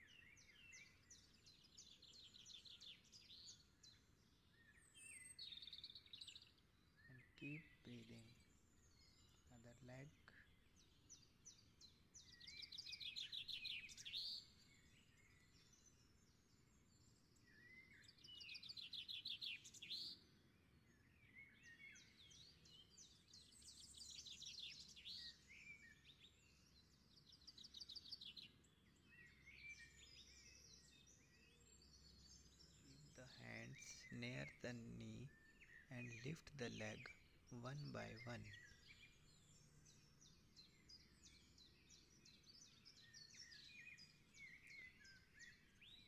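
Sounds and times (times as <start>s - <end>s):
bird chirps: 0.0s - 46.0s
songbird trilling: 4.7s - 10.6s, 12.2s - 14.6s, 32.2s - 42.2s.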